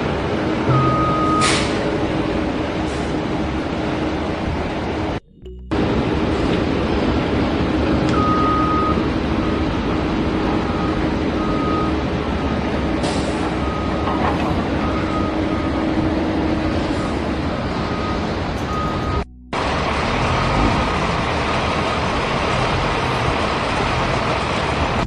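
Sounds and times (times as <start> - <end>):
vehicle engine running: 0.0 - 25.0
reversing beeper: 0.7 - 3.1, 8.0 - 12.1, 13.1 - 15.8, 16.6 - 20.9.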